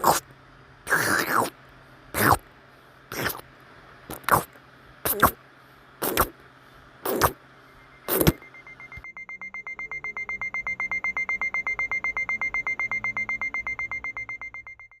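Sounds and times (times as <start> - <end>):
alarm clock beeping: 7.8 - 15.0.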